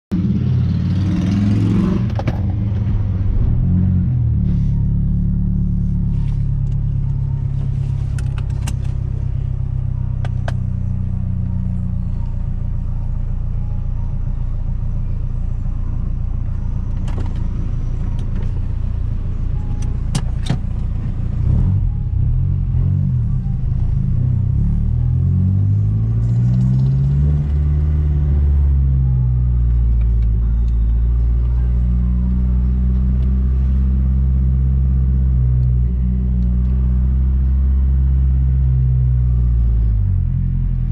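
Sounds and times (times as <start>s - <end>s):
car engine running while driving: 0.1s - 40.9s.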